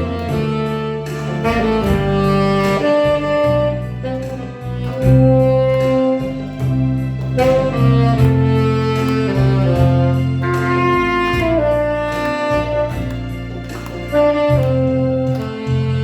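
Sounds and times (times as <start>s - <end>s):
backing track with bass and beat: 0.0s - 16.0s
saxophone melody: 0.0s - 16.0s.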